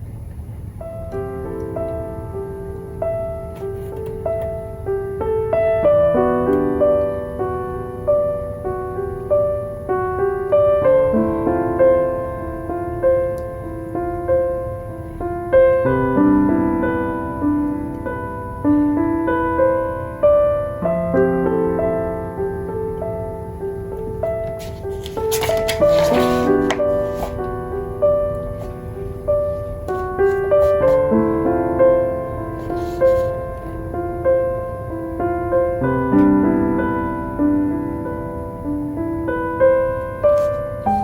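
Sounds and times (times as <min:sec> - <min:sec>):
gentle solo piano music: 0:00.0 - 0:41.0.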